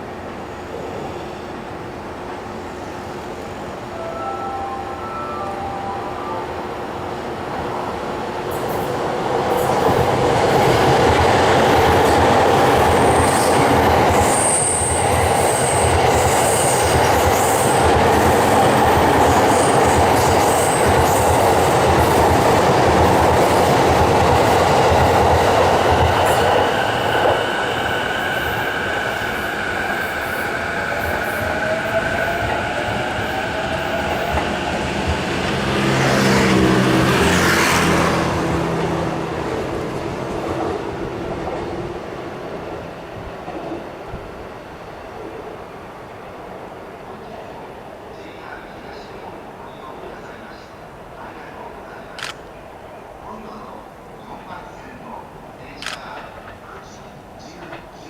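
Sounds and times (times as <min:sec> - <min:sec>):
train wheels rumbling on rail: 0:07.5 - 0:45.4.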